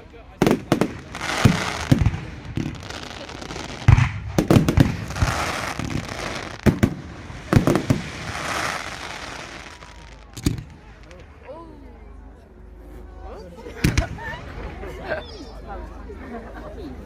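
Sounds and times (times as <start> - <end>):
fireworks bangs: 0.4 - 11.2
crackling hiss between bangs: 0.5 - 11.3.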